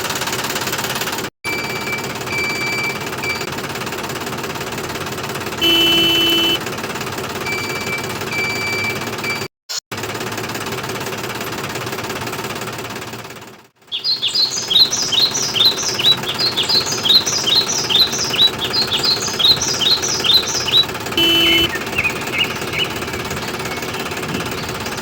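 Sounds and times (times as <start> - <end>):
short beep-like tone: 5.6 - 6.6, 21.2 - 21.8
bird chirping: 13.9 - 25.0
steady mechanical hum: 14.7 - 25.0.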